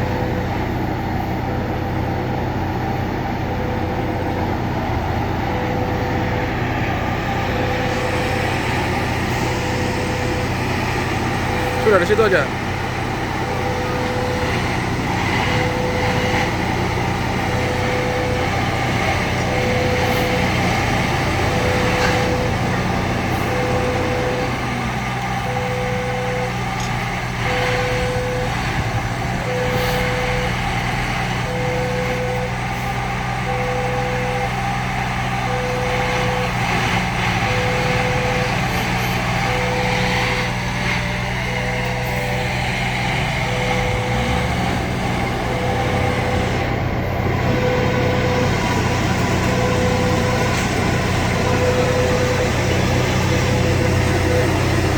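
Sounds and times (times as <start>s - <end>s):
diesel engine running: 0.0s - 54.9s
warning beeper: 11.4s - 12.7s, 17.4s - 28.6s, 29.4s - 30.6s.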